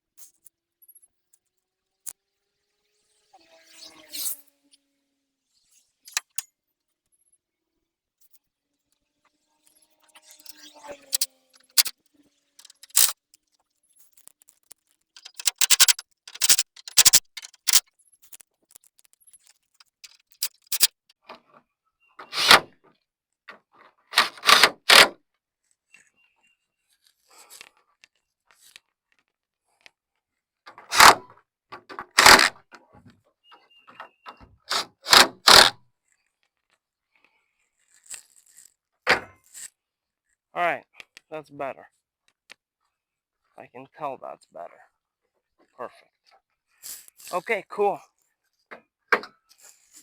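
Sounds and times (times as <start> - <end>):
scrapes and knocks: 14.1 - 20.9.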